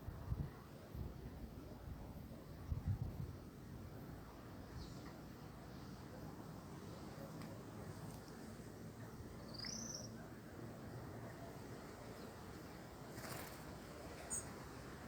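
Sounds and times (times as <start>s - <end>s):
faint outdoor background noise: 0.0s - 15.0s
high bird chirp: 9.4s - 10.2s.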